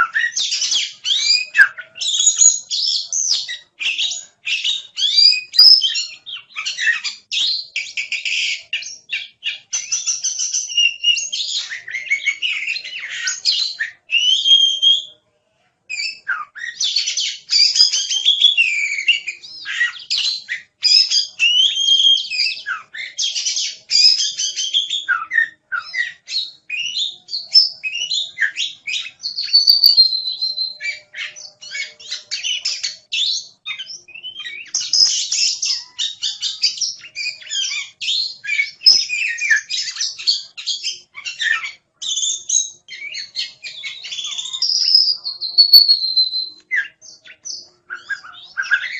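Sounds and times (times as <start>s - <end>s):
songbird singing: 0.0s - 15.2s, 15.9s - 48.9s.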